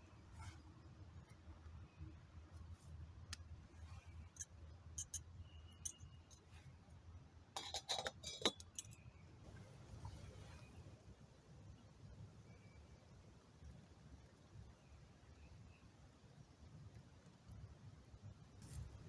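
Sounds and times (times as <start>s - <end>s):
metal pot clinking: 7.6s - 9.0s.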